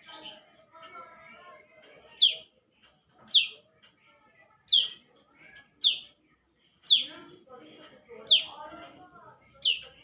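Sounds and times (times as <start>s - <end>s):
bird chirping: 0.0s - 2.6s, 3.2s - 7.4s, 8.1s - 10.0s.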